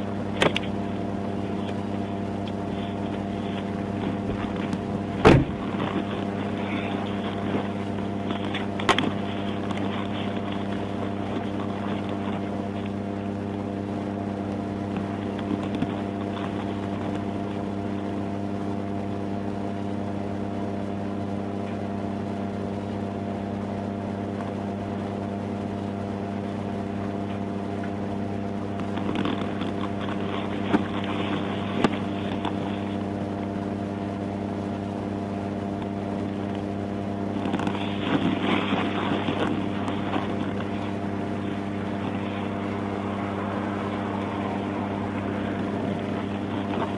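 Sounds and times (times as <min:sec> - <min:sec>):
vehicle engine idling: 0:37.2 - 0:46.9.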